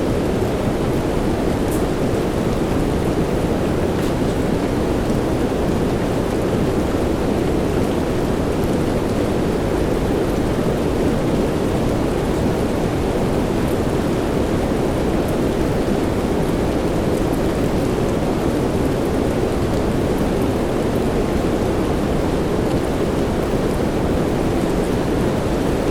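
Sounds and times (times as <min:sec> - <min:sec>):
soft rain with white noise: 0:00.0 - 0:25.9.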